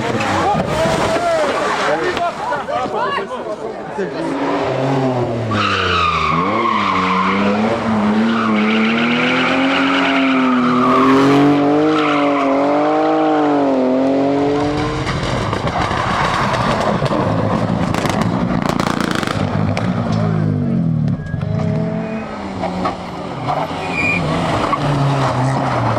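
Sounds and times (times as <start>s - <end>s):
tyres skidding: 0.0s - 25.9s
rally car engine at high revs: 4.1s - 25.9s.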